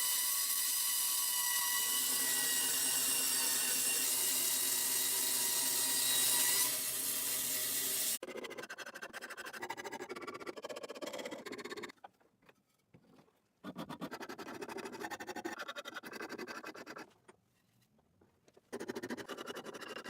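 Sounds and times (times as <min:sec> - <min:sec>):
hand tool scraping wood: 0:11.6 - 0:20.0.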